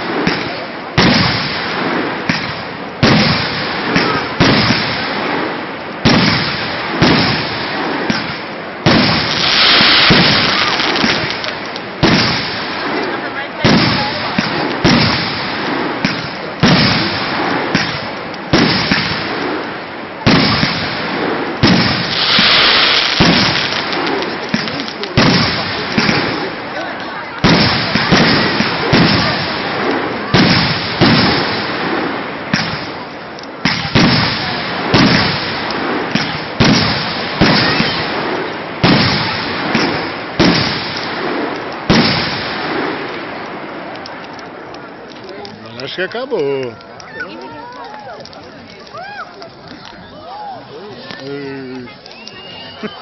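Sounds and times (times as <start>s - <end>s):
fireworks banging: 0.0s - 53.0s
fireworks crackling: 0.0s - 53.0s
hissing fizz: 9.2s - 11.8s, 21.8s - 25.1s
small pops: 43.0s - 45.6s.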